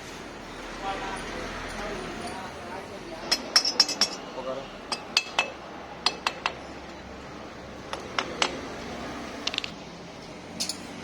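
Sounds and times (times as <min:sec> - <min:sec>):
metallic clinks of tools: 0:10.6 - 0:10.9.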